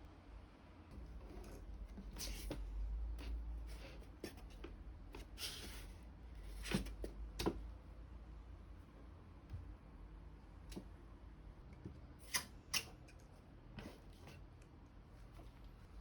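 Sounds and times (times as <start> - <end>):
objects rustling and scraping: 1.0 - 7.6.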